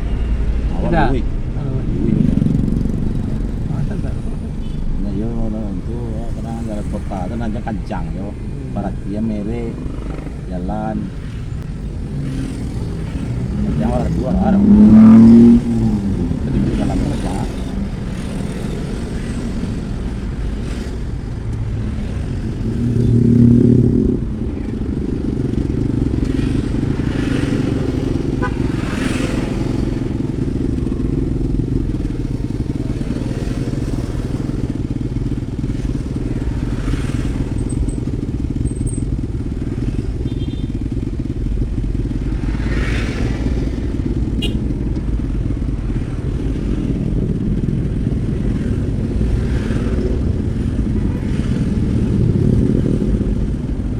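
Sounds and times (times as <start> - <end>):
louder engine passing: 0.0 - 41.0
vehicle engine and road noise: 0.0 - 53.9
vehicles whooshing by: 0.0 - 53.9.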